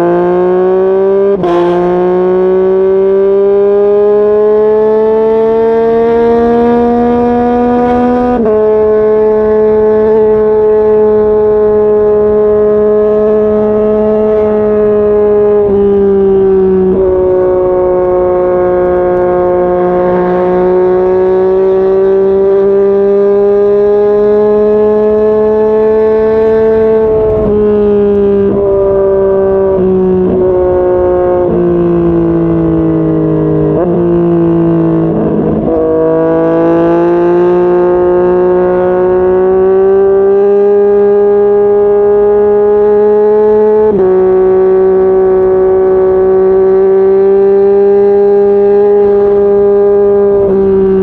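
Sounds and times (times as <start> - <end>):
motorcycle engine and exhaust: 0.0 - 51.0.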